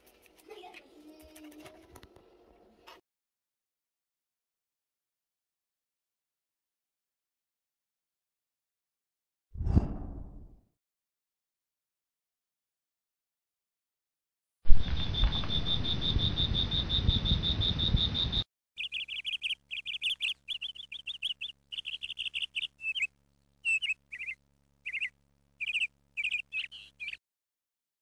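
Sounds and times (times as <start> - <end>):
small birds chirping: 14.8 - 27.2.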